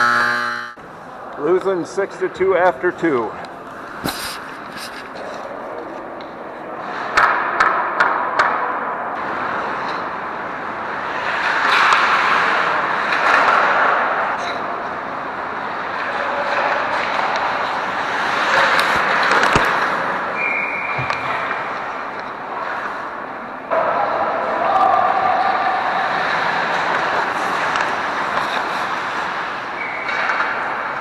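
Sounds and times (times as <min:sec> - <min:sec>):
sharp hockey clacks: 0:02.9 - 0:06.4, 0:07.1 - 0:08.6, 0:11.2 - 0:14.6, 0:16.0 - 0:22.8, 0:26.9 - 0:31.0
skates scraping ice: 0:02.9 - 0:07.1, 0:09.3 - 0:23.4, 0:25.7 - 0:31.0.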